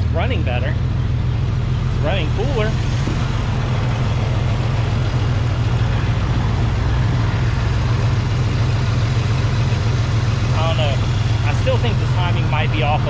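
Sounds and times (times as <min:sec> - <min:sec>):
rough car engine idling: 0:00.0 - 0:13.0.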